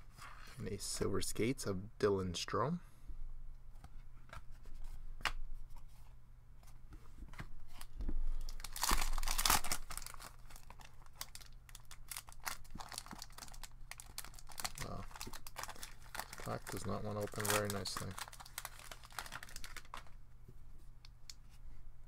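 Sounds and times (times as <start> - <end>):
wrapper tearing and crinkling: 8.4 - 20.2.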